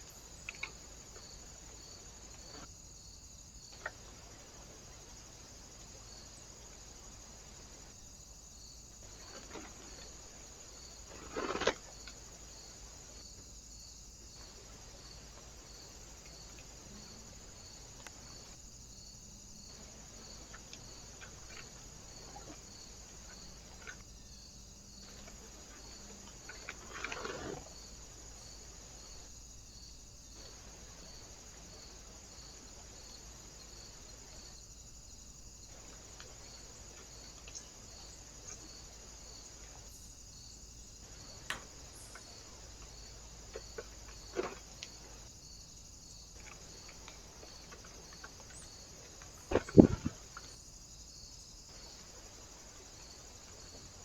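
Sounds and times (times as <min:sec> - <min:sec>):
brief rustle: 0:11.1 - 0:12.2, 0:25.0 - 0:27.7.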